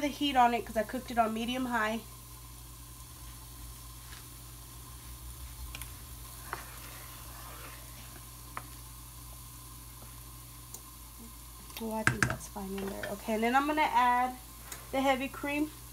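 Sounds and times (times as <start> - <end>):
mushrooms sizzling in a pan: 0.0 - 15.9.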